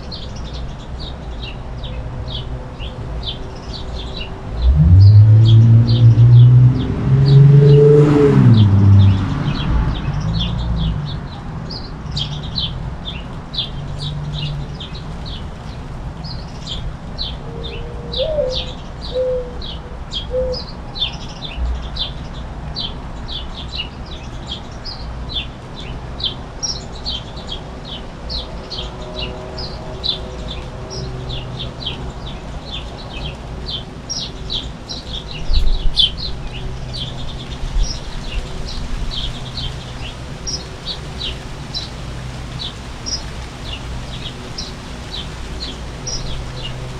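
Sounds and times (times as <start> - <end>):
rain hissing: 3.4 - 11.3, 29.6 - 46.9
low rumble: 4.4 - 11.8.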